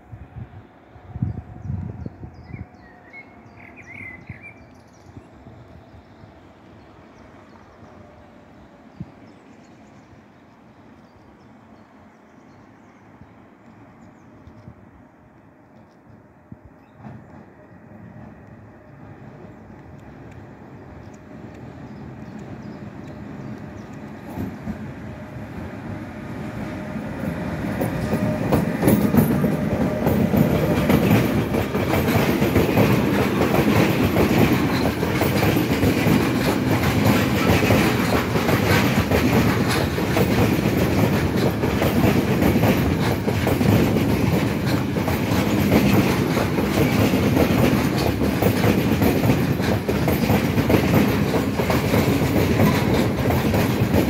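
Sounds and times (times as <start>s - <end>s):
freight train rumble: 0.0s - 54.0s
train wheels clattering on track: 15.4s - 54.0s.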